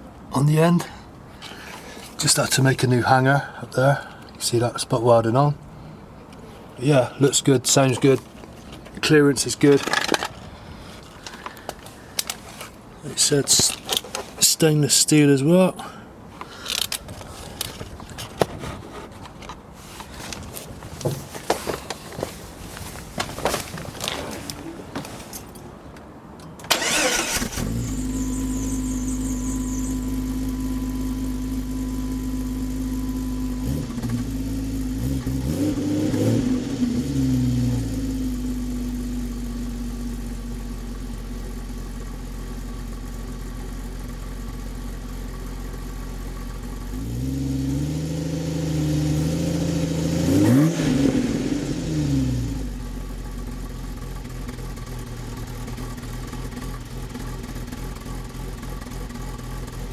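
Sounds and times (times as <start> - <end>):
car engine idling and revving: 26.0 - 59.9
car engine starting: 26.4 - 59.9.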